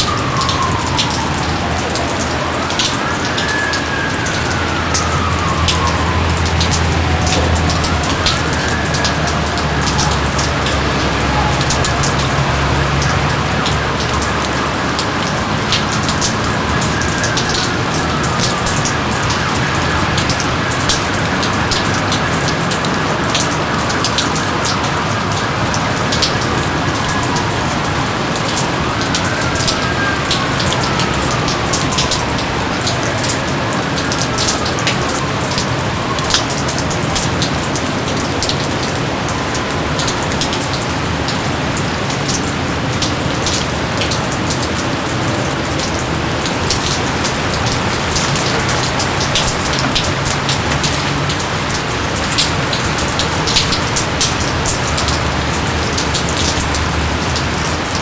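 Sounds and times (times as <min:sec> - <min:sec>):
heavy rain with splashing drops: 0:00.0 - 0:58.0.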